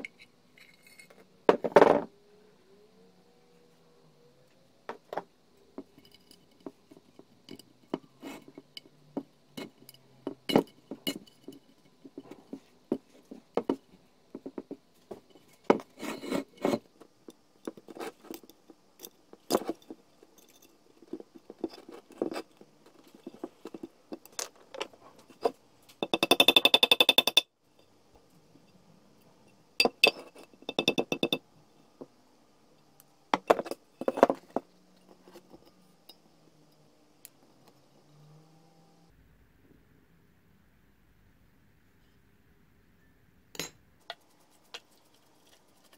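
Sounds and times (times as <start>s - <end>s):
metal tools knocking and scraping: 4.9s - 13.8s, 29.8s - 31.4s, 33.4s - 36.2s.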